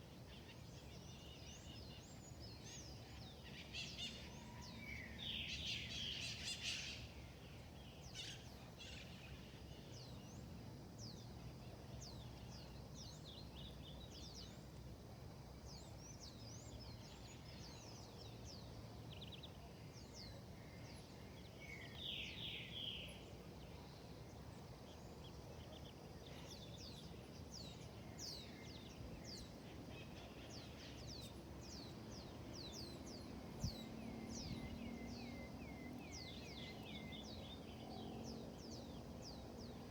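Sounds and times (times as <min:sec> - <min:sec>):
birds chirping: 0:25.2 - 0:39.9.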